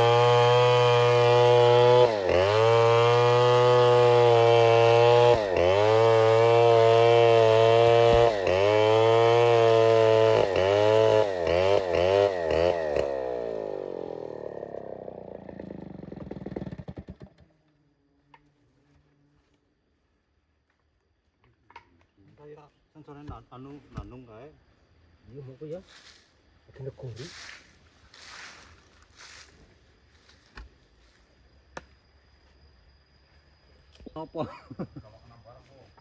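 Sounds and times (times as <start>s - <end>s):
chainsaw engine running: 0.0s - 17.4s.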